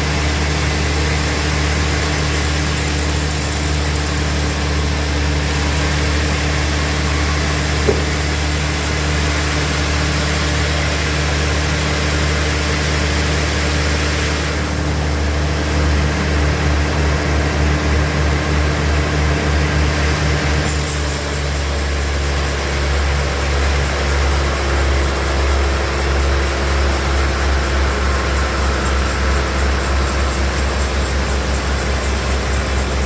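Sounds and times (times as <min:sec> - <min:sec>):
bandsaw machinery humming: 0:01.5 - 0:08.5, 0:20.7 - 0:33.0.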